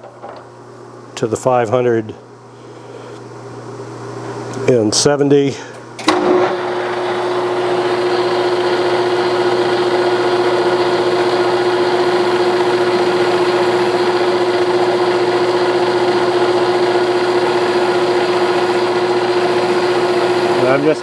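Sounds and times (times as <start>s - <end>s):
lathe running with gear whine: 6.1s - 21.0s.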